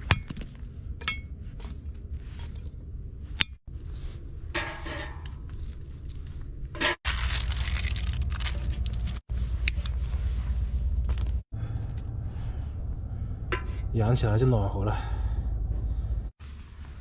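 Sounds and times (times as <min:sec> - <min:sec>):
steady low hum: 0:08.0 - 0:17.0.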